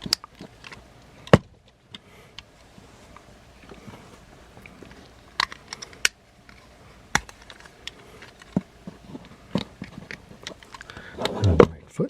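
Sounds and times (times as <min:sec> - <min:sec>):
faint rustling of handling: 0:00.0 - 0:11.7
plastic toy parts clicking: 0:05.3 - 0:08.6.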